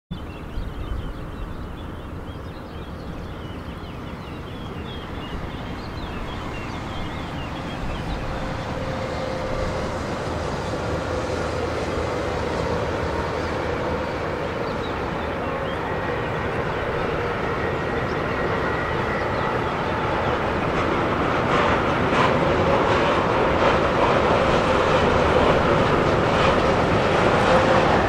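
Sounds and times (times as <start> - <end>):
passenger train rumbling: 0.1 - 28.0.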